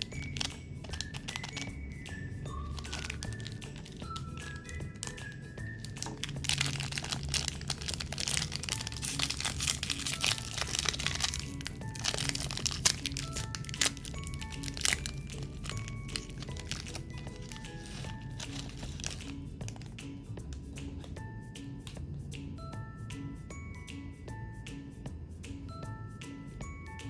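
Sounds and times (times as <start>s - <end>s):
plastic wrappers crinkling: 0.0s - 20.0s
light background music: 0.0s - 27.0s.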